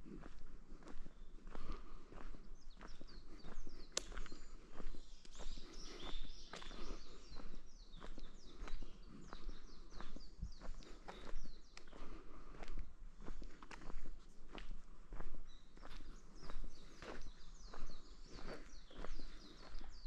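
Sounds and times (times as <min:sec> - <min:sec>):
footsteps on forest trail: 0:00.0 - 0:20.0
birds chirping: 0:00.2 - 0:20.0.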